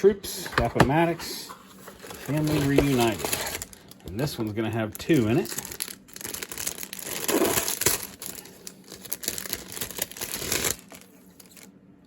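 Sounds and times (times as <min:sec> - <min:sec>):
plastic bag crinkling: 0:01.6 - 0:11.7.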